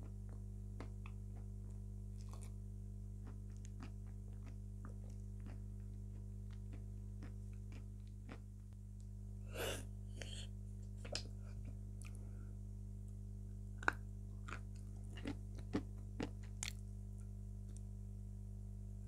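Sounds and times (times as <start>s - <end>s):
person chewing wet clicks: 0.0s - 2.6s, 3.2s - 8.5s, 12.0s - 12.2s, 13.8s - 16.8s
low electrical hum: 0.0s - 19.0s.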